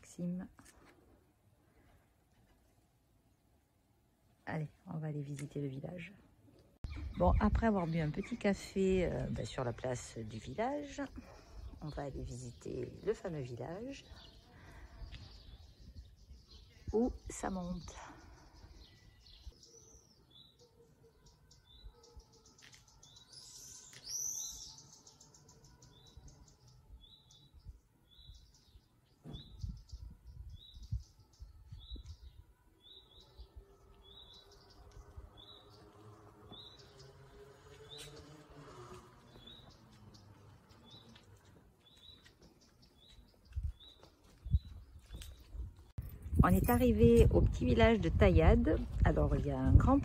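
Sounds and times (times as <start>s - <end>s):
quiet street ambience: 0.0s - 50.0s
small bird chirping: 15.0s - 46.1s.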